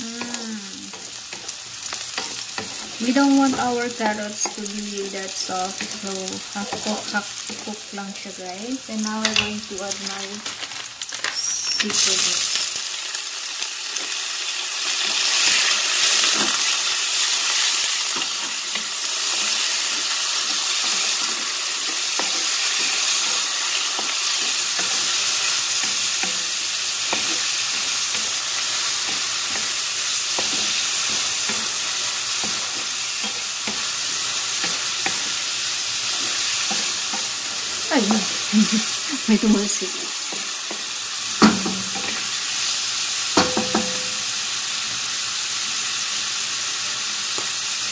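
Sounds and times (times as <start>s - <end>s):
food sizzling in oil: 0.0s - 47.9s
spatula knocking and scraping pan: 18.1s - 38.4s, 43.4s - 44.2s.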